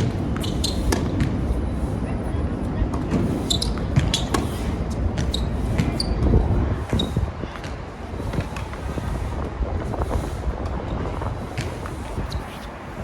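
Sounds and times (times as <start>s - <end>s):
tennis balls struck and bouncing: 0.0s - 1.6s, 2.9s - 8.8s
wind buffeting microphone: 0.0s - 13.0s
brief high squeaks: 0.4s - 1.0s, 3.4s - 4.6s.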